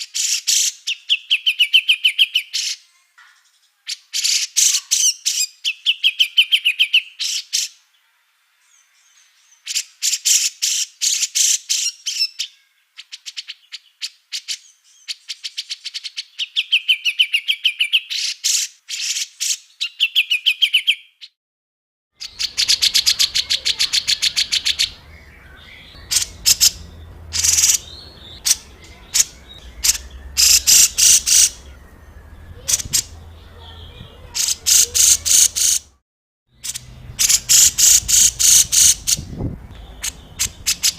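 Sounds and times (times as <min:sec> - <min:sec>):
songbirds chattering: 0:22.2 - 0:36.0, 0:36.6 - 0:40.9
low hum: 0:25.0 - 0:33.6.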